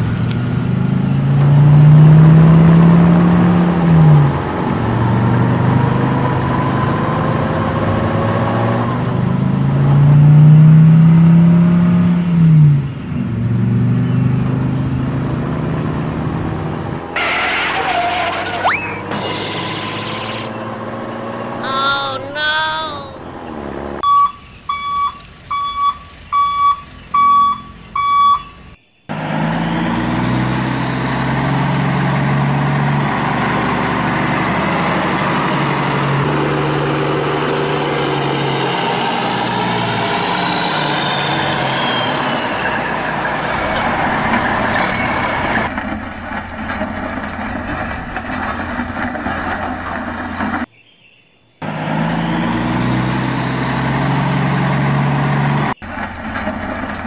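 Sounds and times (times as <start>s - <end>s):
heavy truck engine running: 0.0s - 11.4s, 29.1s - 50.7s, 51.6s - 57.0s
high whine: 18.6s - 20.8s
reversing alarm beeps: 24.0s - 28.8s.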